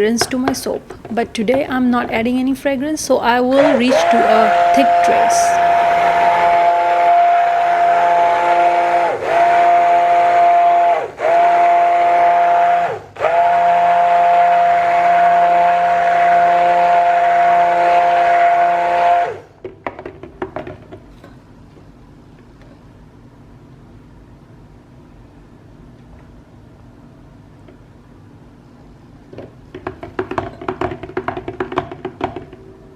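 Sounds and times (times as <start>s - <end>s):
stick blender motor whine: 3.3s - 19.4s.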